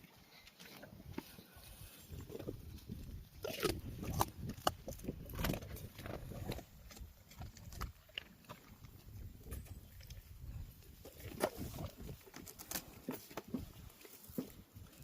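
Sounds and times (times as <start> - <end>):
dog chewing noisily: 2.2 - 12.2.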